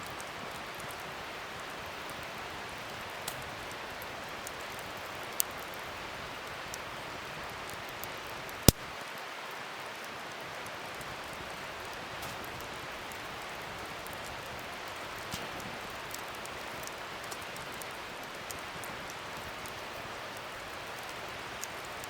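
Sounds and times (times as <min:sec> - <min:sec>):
wood fire hissing: 0:00.0 - 0:22.0
sharp crackling pops: 0:02.8 - 0:05.8, 0:07.7 - 0:09.0, 0:10.0 - 0:22.0.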